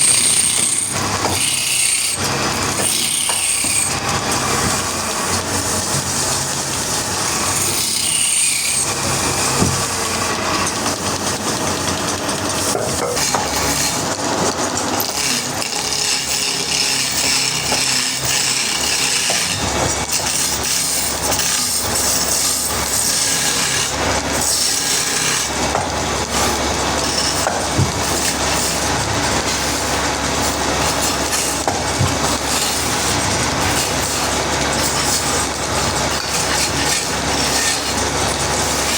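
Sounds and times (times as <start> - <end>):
saw cutting through log: 0.0 - 38.9.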